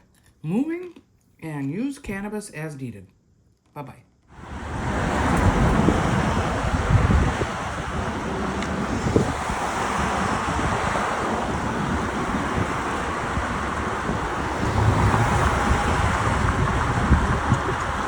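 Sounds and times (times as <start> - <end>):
wind buffeting microphone: 4.4 - 18.0.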